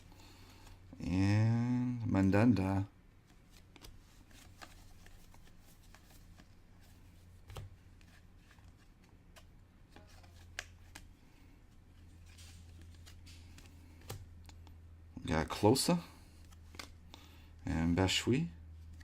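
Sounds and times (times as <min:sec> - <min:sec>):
cards flipped by hand: 0:03.2 - 0:14.7, 0:16.4 - 0:17.0.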